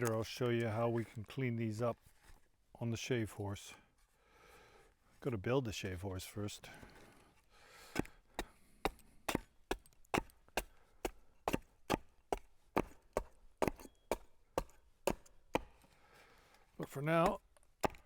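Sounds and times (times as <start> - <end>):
blade chopping wood: 7.9 - 15.8, 17.1 - 18.0.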